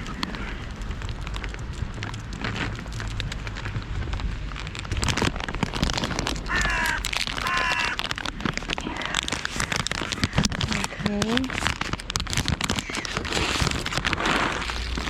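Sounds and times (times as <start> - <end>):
rain patter: 0.0 - 15.0
crow cawing: 6.5 - 8.2.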